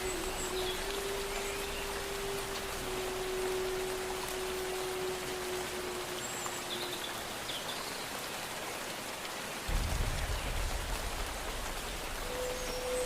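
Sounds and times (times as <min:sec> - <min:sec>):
steady rain: 0:00.0 - 0:13.0
low rumble: 0:09.7 - 0:12.9.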